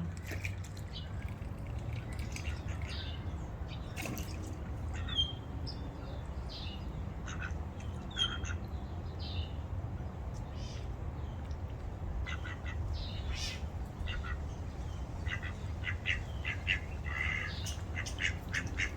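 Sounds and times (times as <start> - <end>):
small birds chirping: 0.8 - 18.9.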